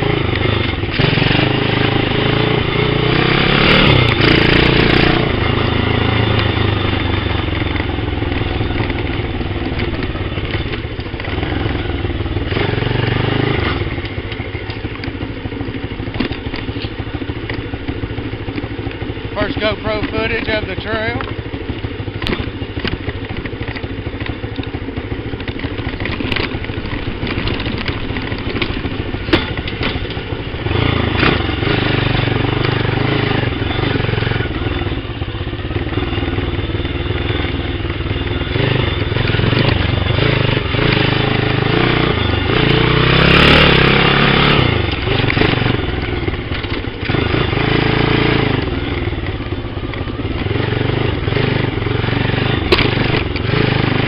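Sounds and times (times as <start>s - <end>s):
small motorcycle engine revving: 0.0s - 54.0s
bike knocks and rattles: 13.7s - 19.0s, 22.1s - 31.6s.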